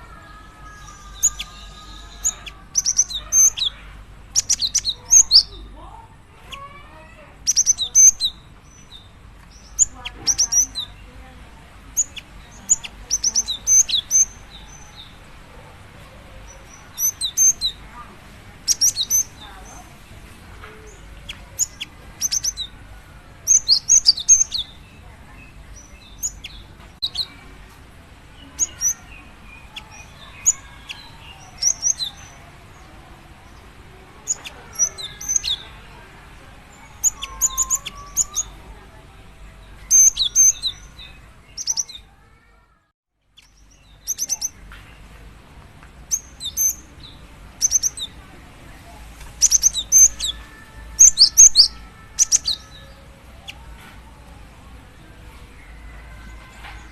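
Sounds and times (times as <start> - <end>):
high bird chirps: 0.3 - 5.7, 6.4 - 11.1, 12.0 - 15.2, 16.5 - 17.8, 18.6 - 19.9, 20.8 - 22.8, 23.5 - 27.4, 28.4 - 32.4, 34.2 - 36.0, 36.7 - 38.6, 39.8 - 42.1, 43.4 - 44.8, 46.0 - 48.2, 49.3 - 53.7.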